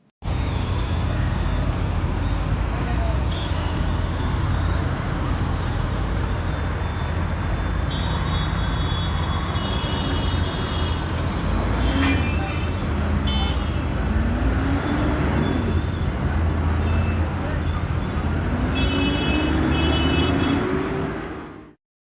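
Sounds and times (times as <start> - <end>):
traffic noise: 0.0 - 21.8
bus engine rumble: 5.4 - 21.0
horn sounding: 6.5 - 13.9.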